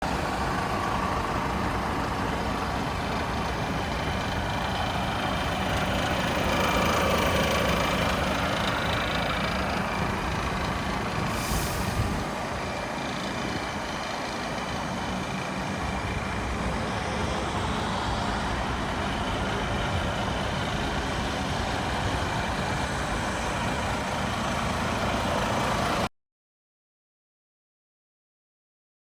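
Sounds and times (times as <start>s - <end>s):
diesel truck engine running: 0.0s - 26.1s
air hiss: 11.2s - 12.4s.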